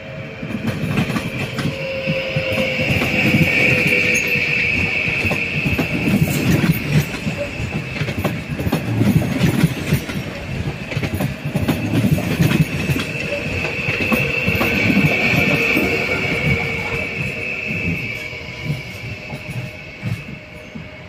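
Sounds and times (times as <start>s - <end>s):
low train rumble: 0.0s - 21.0s
high-pitched wheel squeal: 1.2s - 8.6s, 11.8s - 21.0s.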